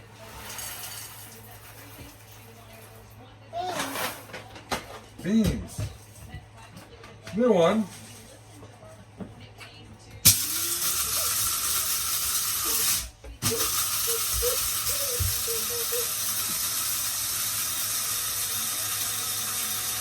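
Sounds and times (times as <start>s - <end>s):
coffee grinder grinding beans: 10.2s - 20.0s.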